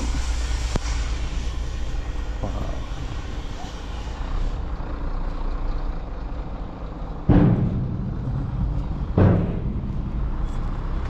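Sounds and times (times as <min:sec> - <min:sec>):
vehicle engine running: 0:00.0 - 0:11.0
loud thumps: 0:07.2 - 0:11.0.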